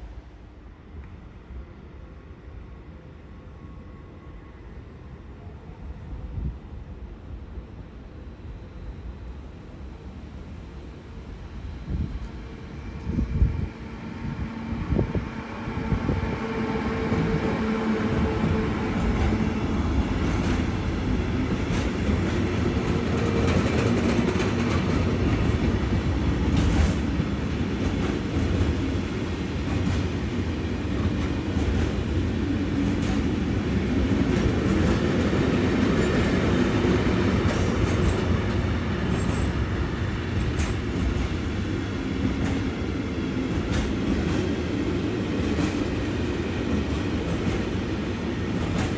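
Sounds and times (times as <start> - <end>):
train wheels rumbling on rail: 8.5 - 48.9
rail clicks: 15.2 - 48.9.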